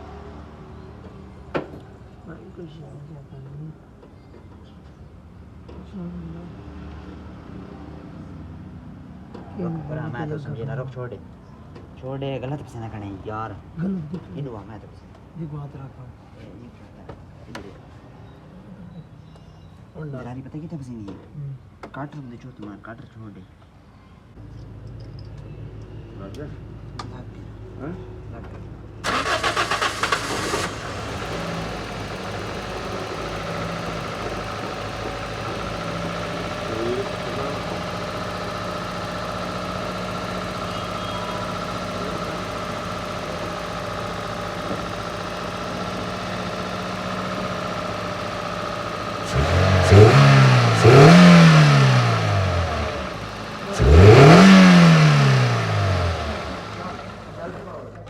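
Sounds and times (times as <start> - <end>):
car engine idling and revving: 0.0 - 2.4, 26.3 - 58.0.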